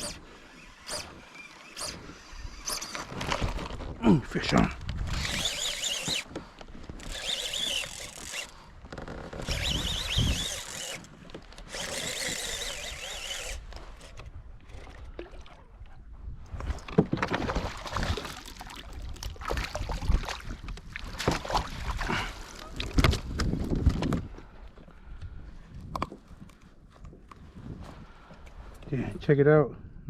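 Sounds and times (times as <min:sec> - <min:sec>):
fishing reel whirring: 0:00.0 - 0:03.1, 0:05.1 - 0:06.3, 0:06.9 - 0:14.8.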